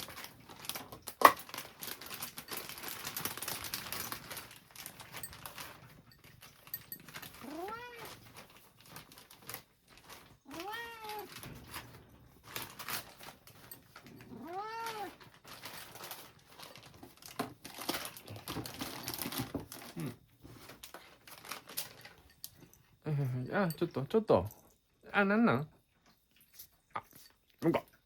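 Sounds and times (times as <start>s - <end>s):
cat meowing: 7.4s - 8.3s, 10.5s - 11.4s, 14.2s - 15.2s.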